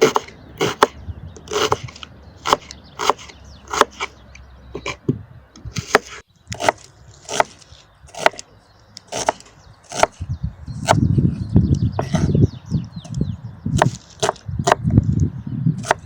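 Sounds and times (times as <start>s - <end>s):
blade chopping wood: 0.0s - 4.1s, 5.7s - 8.4s, 9.1s - 10.2s, 15.8s - 16.0s.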